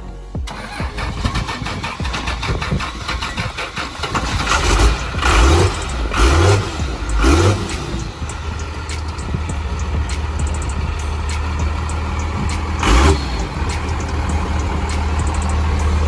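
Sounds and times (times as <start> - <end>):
truck engine revving: 0.5 - 16.0.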